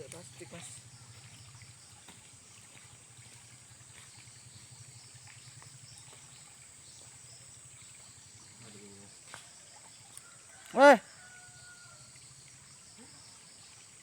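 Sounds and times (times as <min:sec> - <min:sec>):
faint ticks: 0:00.0 - 0:04.3, 0:09.2 - 0:10.4.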